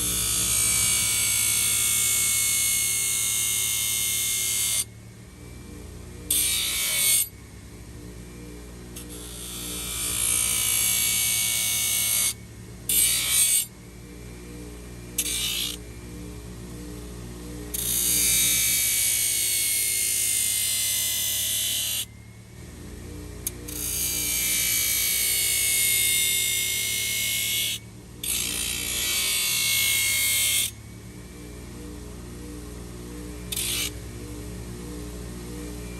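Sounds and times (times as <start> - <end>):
soft background music: 0.0 - 35.9
power tool grinding hoof: 23.4 - 30.7, 33.4 - 34.0.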